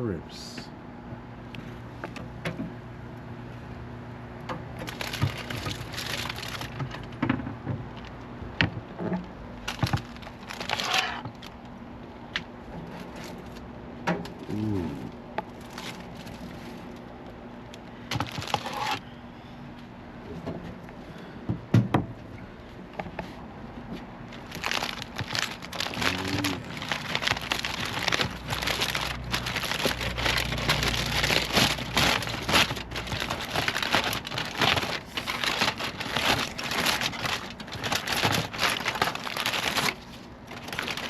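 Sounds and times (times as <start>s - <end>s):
low steady hum: 0.0s - 41.0s
aluminium foil crinkling: 4.8s - 7.2s, 9.6s - 11.6s, 15.5s - 17.1s, 18.1s - 19.0s, 24.3s - 41.0s.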